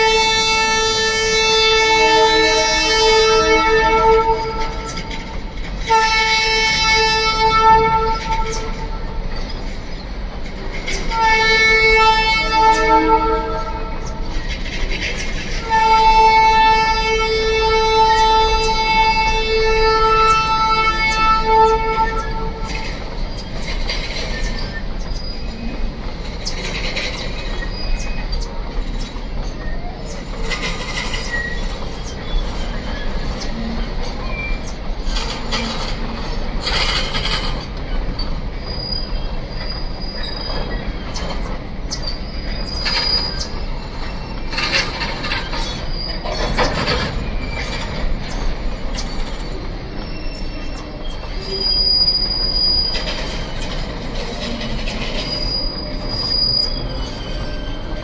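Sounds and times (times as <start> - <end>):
train wheels rumbling on rails: 0.0 - 58.0
wheel squeals: 18.0 - 58.0.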